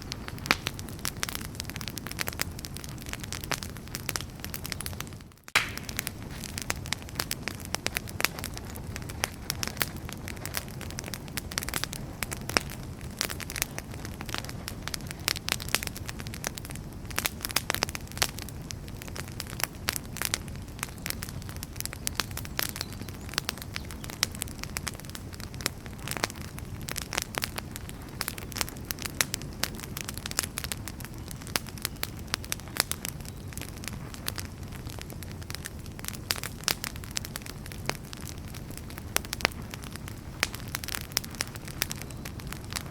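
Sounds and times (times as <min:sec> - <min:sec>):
low rumble of flames: 0:00.0 - 0:42.9
wood fire crackling and popping: 0:00.0 - 0:42.9.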